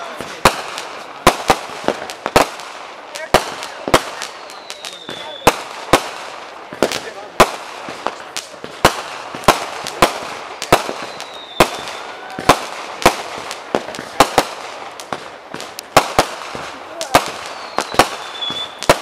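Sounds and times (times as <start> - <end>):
fireworks bangs: 0.0 - 19.0
fireworks hiss: 0.0 - 19.0
faint falling whistle: 17.6 - 18.8.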